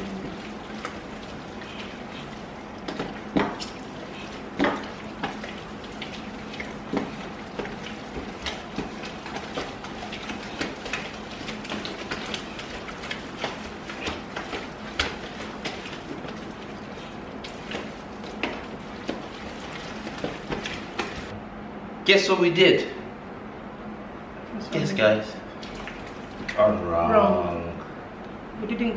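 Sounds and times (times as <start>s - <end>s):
hands squishing wet slime: 0.0s - 21.3s.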